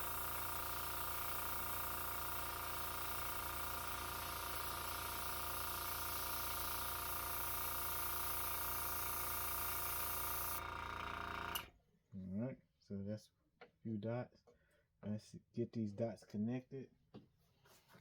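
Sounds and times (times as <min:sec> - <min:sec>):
airbrush compressor humming: 0:00.0 - 0:11.7.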